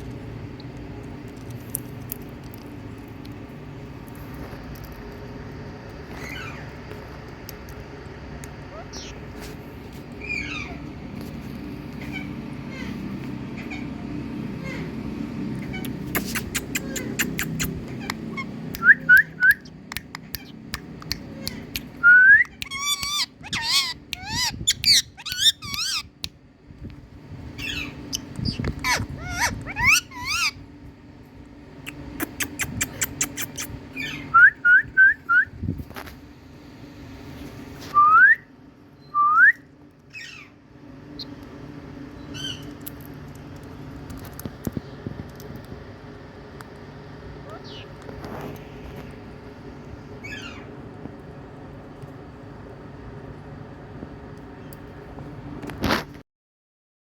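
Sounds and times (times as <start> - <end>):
parakeet whistles and calls: 6.2 - 6.7, 8.7 - 9.2, 10.2 - 10.8, 15.6 - 19.8, 21.4 - 26.2, 27.5 - 30.6, 31.8 - 35.6, 38.0 - 40.6, 42.2 - 42.7, 47.4 - 48.0, 50.2 - 50.7.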